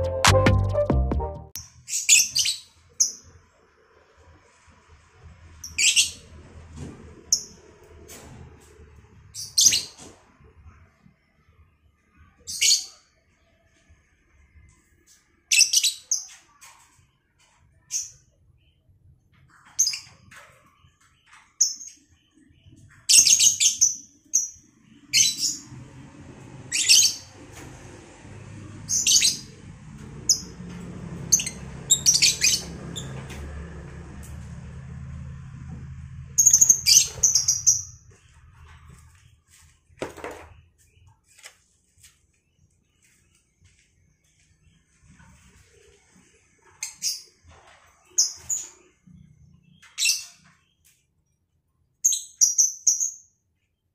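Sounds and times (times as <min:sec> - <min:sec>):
birds chirping shrilly: 0:31.3 - 0:33.1, 0:36.4 - 0:38.3.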